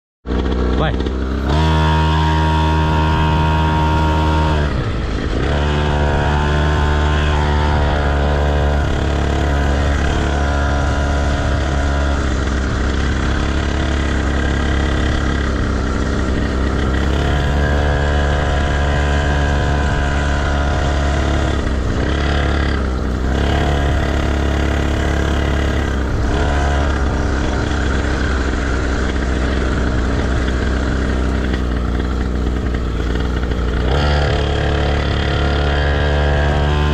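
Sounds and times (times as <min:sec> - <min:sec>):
motocross bike engine revving: 0:00.3 - 0:36.9.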